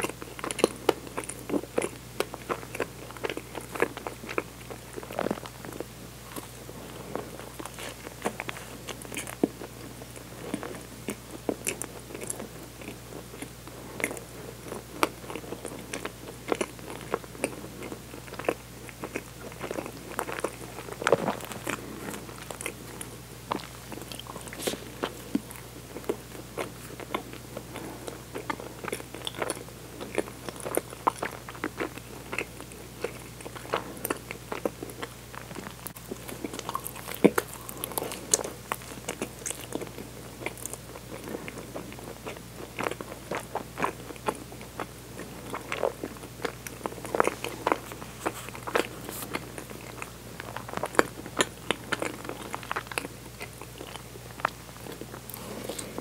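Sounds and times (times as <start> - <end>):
person chewing a soft bun: 0.0 - 56.0.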